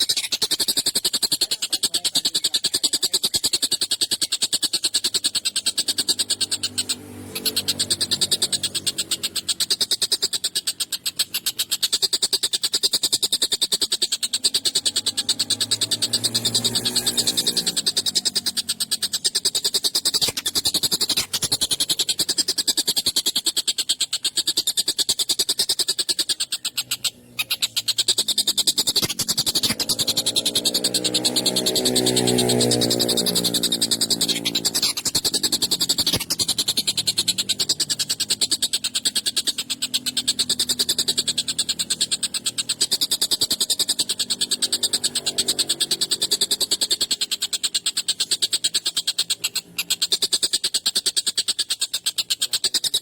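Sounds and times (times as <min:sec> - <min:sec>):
kingfisher rattling trill: 0:00.0 - 0:53.0.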